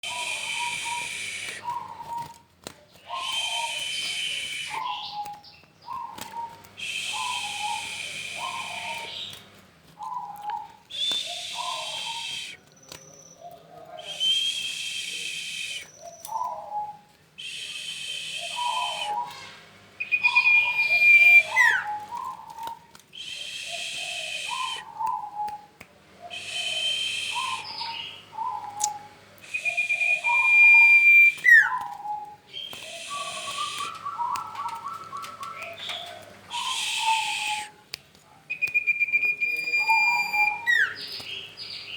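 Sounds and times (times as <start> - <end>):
songbird whistling high notes: 0.0 - 2.3, 17.4 - 22.4, 26.3 - 35.9, 36.5 - 37.7, 38.6 - 41.1.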